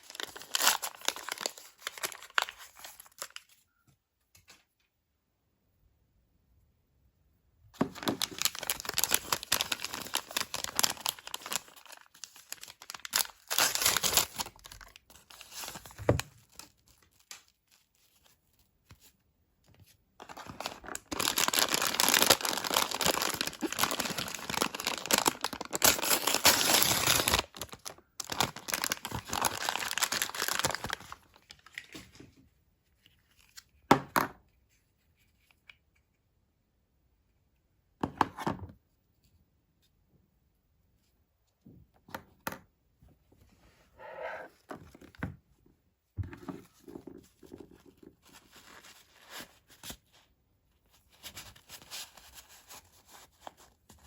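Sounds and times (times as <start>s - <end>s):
packaging tearing and crinkling: 0.0s - 3.6s, 7.8s - 18.2s, 20.2s - 32.0s.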